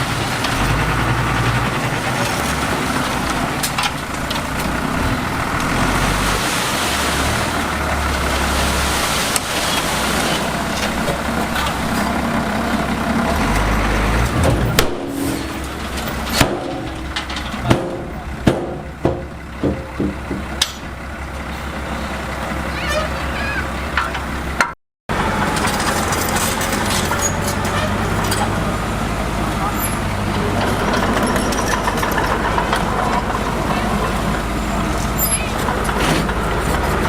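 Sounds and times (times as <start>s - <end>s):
diesel machinery rumbling: 0.0s - 37.0s
metallic knocks and clanks: 13.5s - 21.0s.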